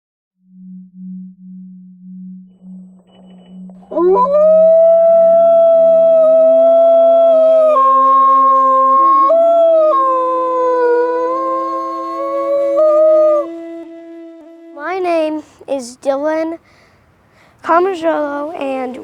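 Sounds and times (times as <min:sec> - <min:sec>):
lower wolf howl: 0:03.9 - 0:14.4
wolf howling: 0:03.9 - 0:14.5.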